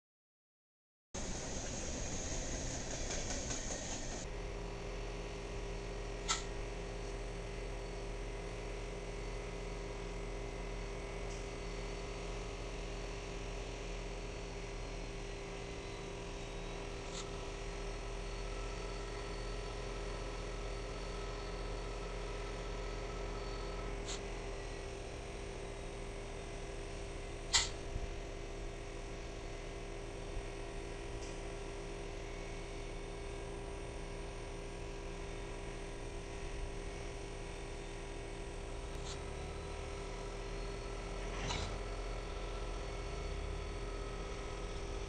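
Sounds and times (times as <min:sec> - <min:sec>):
freight train rolling past: 0:01.2 - 0:04.2
low mechanical train hum: 0:01.2 - 0:45.0.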